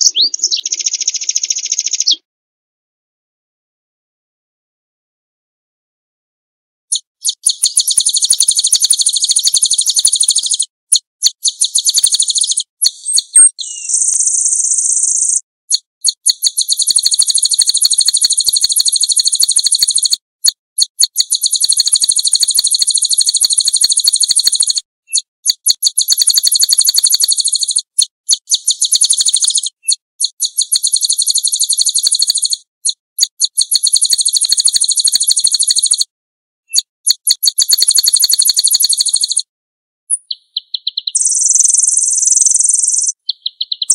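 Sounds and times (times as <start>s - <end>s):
songbird high rapid trills: 7.3s - 10.6s.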